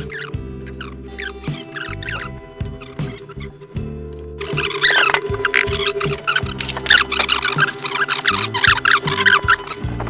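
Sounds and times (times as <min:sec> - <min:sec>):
held low music notes: 0:00.0 - 0:10.0
high-pitched chirping sounds: 0:00.0 - 0:10.0.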